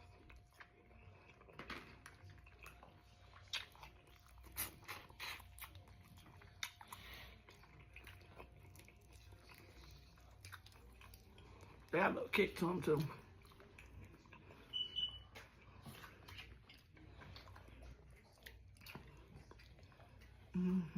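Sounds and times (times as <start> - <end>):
person chewing: 0.0 - 11.9, 12.8 - 20.9.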